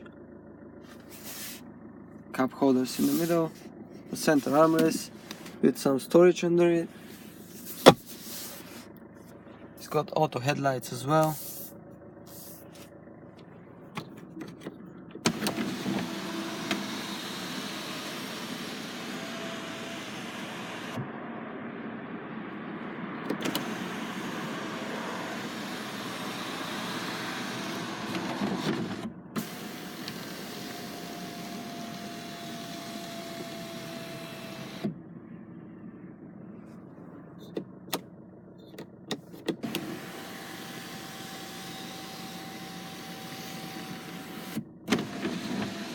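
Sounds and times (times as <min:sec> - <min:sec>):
electric motor humming: 0:15.3 - 0:21.0, 0:29.4 - 0:34.9, 0:39.6 - 0:45.9.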